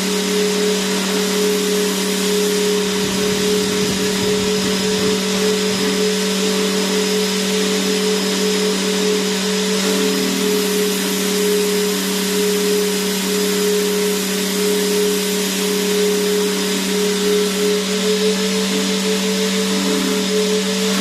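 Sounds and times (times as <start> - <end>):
vacuum cleaner motor running: 0.0 - 21.0.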